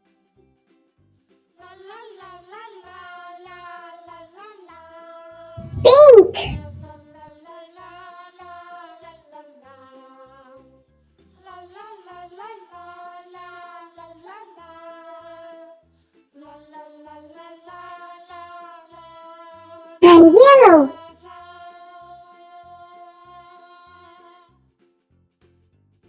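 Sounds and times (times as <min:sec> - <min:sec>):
soft children's music: 0:05.6 - 0:07.0, 0:20.0 - 0:20.9.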